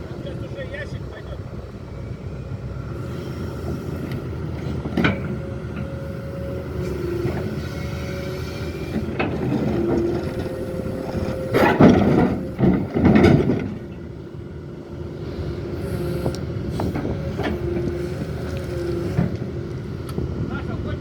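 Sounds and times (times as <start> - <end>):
diesel engine running: 0.0 - 21.0
rough grinding noise: 3.0 - 14.1.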